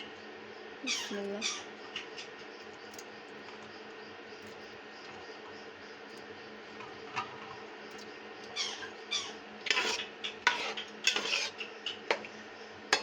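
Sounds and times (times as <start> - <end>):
metal spoon scraping a pot: 9.6 - 12.2.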